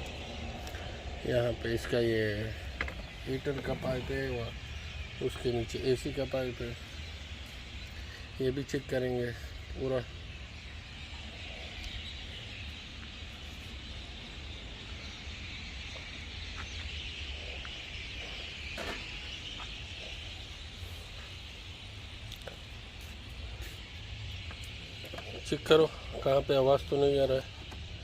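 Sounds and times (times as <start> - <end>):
compressor humming: 0.0 - 28.0
steady air hiss: 19.3 - 24.8.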